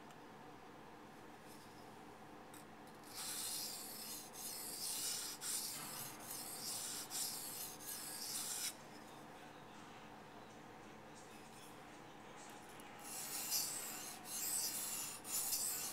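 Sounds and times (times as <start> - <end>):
knife scraping on whetstone: 3.0 - 8.8, 13.0 - 15.9.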